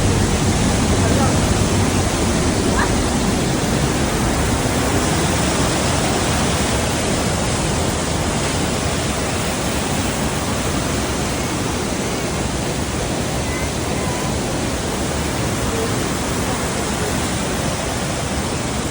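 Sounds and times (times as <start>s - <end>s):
waterfall roaring: 0.0s - 18.9s.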